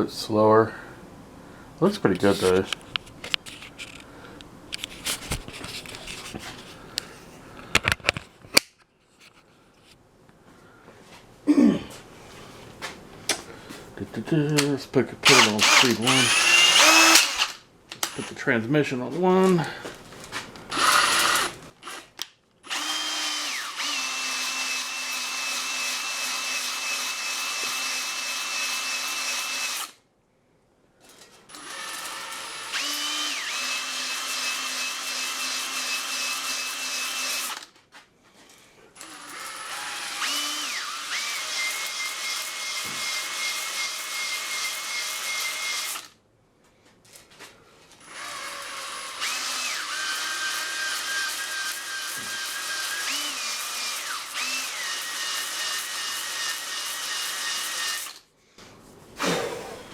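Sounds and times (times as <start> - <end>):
electric drill whining: 15.3 - 18.4, 20.7 - 30.0, 31.5 - 37.7, 39.0 - 46.1, 48.0 - 58.2.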